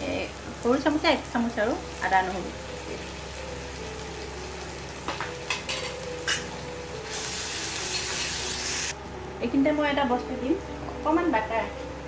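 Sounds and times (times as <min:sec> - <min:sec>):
paste sizzling in hot oil: 0:00.0 - 0:09.0.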